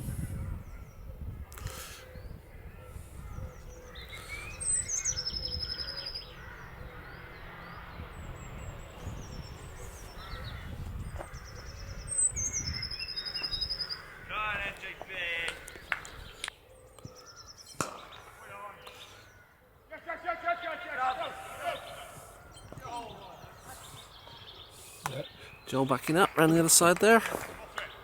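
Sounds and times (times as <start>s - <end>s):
songbirds singing: 0.0s - 28.0s.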